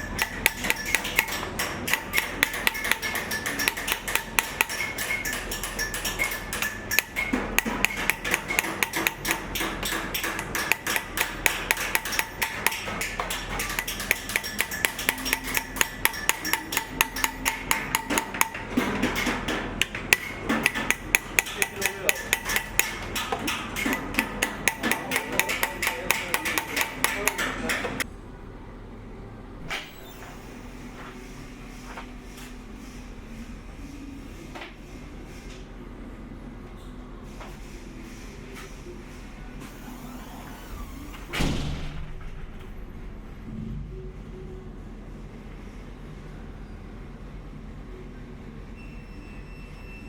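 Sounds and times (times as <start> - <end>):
hammer tapping sheet metal: 0.0 - 28.1.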